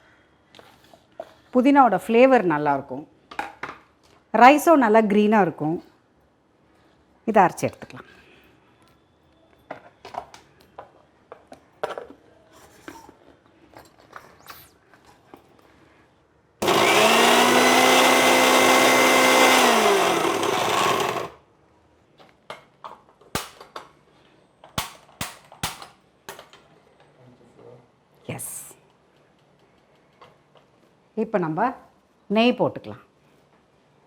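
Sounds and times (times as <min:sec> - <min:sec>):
mixer grinder running: 0:16.6 - 0:21.4.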